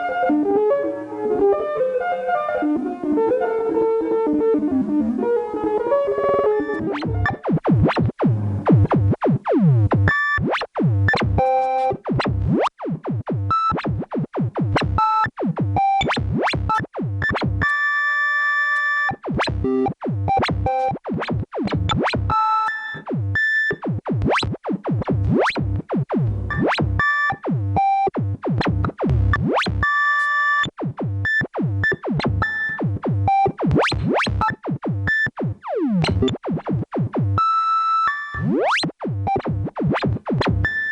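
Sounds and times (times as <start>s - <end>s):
synthesizer zapping notes: 6.2s - 17.8s, 19.0s - 37.6s.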